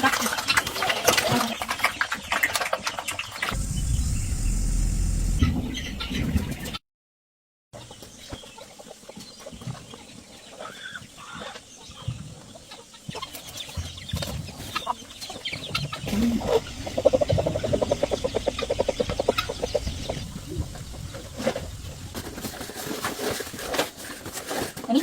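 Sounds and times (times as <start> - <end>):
chickens clucking: 7.8 - 22.6.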